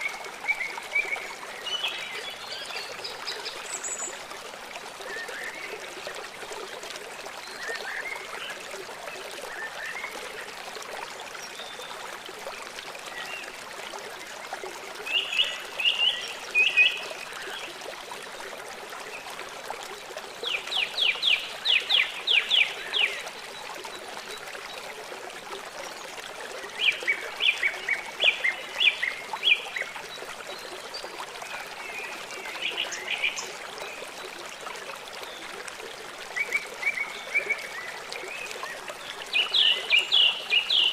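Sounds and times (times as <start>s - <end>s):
flowing water: 0.0s - 40.9s.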